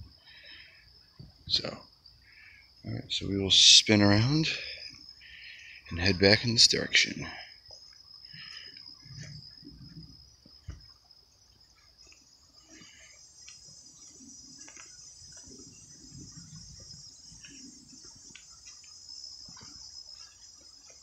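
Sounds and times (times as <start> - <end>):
crickets and insects chirping: 0.0 - 21.0
footsteps on dirt trail: 11.9 - 21.0.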